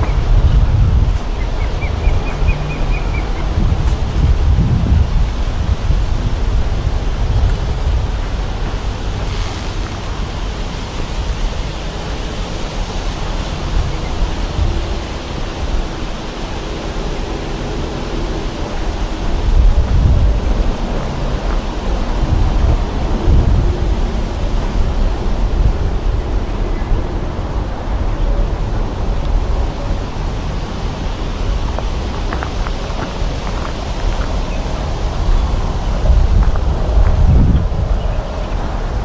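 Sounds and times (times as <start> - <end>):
wind rushing over microphone: 0.0 - 39.0.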